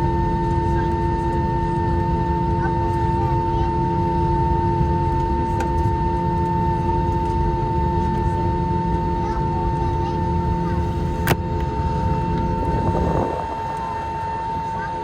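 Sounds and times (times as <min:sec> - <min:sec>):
aircraft cabin rumble: 0:10.4 - 0:15.0
whine: 0:10.5 - 0:15.0.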